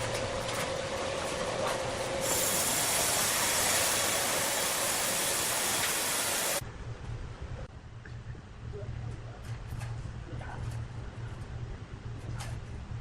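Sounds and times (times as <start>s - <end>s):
machinery humming and hissing: 0.0s - 6.6s.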